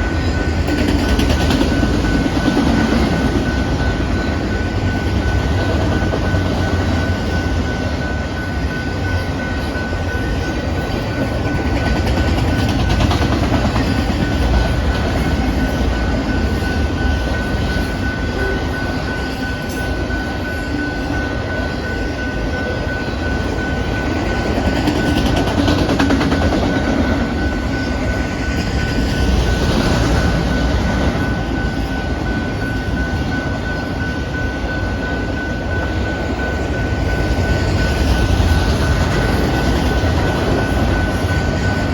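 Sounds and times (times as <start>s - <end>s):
steady high tone: 0.0s - 41.9s
train wheels rumbling on rails: 0.0s - 41.9s.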